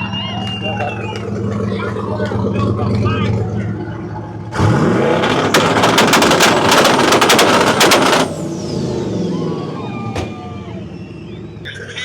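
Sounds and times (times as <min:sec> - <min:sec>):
engine on rev limiter: 0:00.0 - 0:12.0
exhaust popping and banging: 0:04.6 - 0:08.4.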